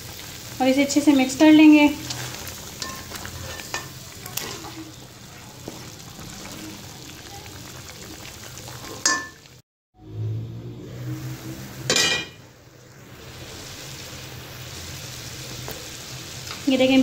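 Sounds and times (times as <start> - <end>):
chicken sizzling in pan: 0.0 - 9.6, 10.8 - 17.0
spatula scraping pan: 1.6 - 6.4.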